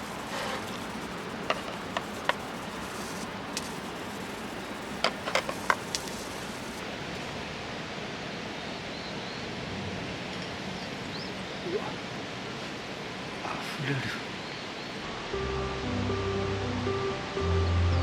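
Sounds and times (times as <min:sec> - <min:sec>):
rushing hiss: 0:00.0 - 0:08.5.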